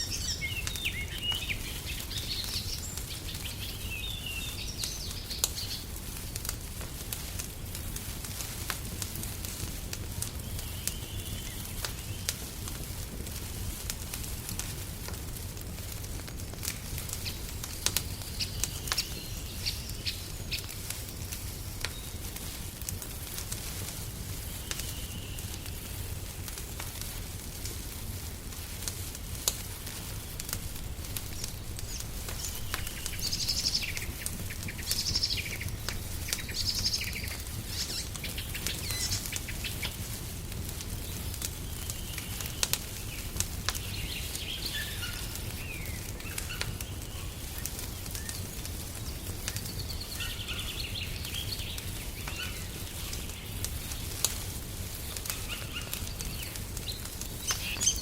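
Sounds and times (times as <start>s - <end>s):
small birds chirping: 0.0s - 8.0s, 10.0s - 13.7s, 16.4s - 26.0s, 29.4s - 58.0s
wood fire crackling and popping: 0.0s - 58.0s.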